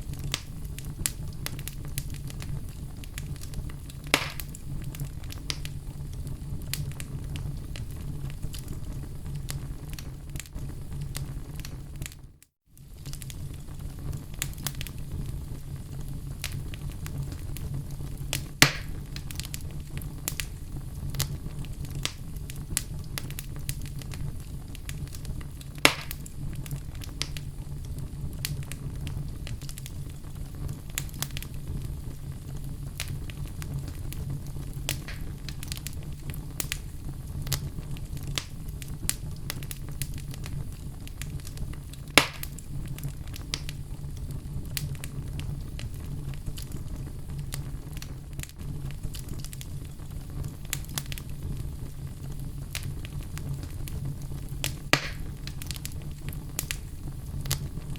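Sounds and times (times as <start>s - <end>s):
wood fire crackling: 0.0s - 57.9s
logs popping: 3.2s - 4.6s, 18.6s - 19.5s, 25.8s - 26.3s, 34.9s - 36.0s, 42.1s - 42.6s, 54.6s - 55.9s.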